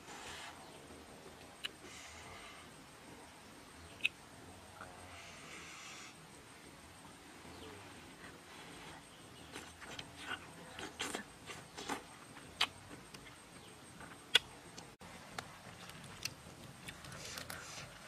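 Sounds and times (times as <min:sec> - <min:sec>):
person chewing with wet clicks: 0:14.3 - 0:14.5, 0:15.3 - 0:17.6.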